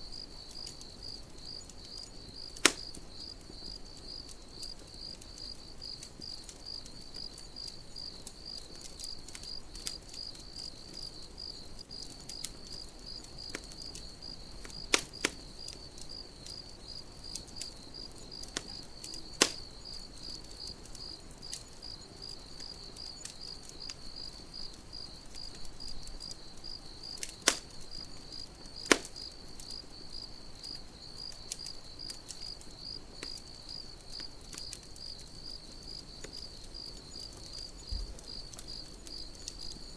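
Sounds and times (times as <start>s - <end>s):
campfire crackling: 0.0s - 39.9s
crickets chirping: 0.0s - 39.9s
loud sharp fire pops: 2.4s - 3.3s, 12.0s - 16.7s, 18.4s - 20.3s, 26.4s - 29.8s.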